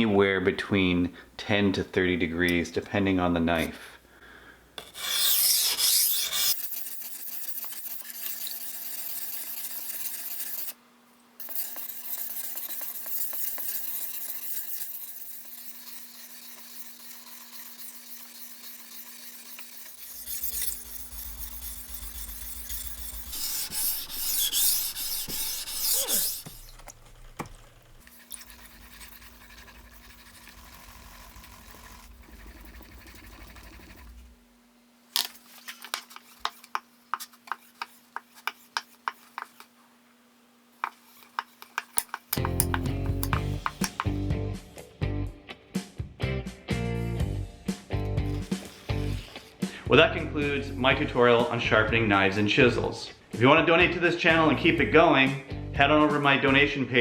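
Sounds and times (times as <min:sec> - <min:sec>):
knife scraping on whetstone: 0:04.8 - 0:10.8, 0:11.4 - 0:34.3, 0:35.2 - 0:39.8, 0:40.8 - 0:44.2, 0:48.3 - 0:49.6.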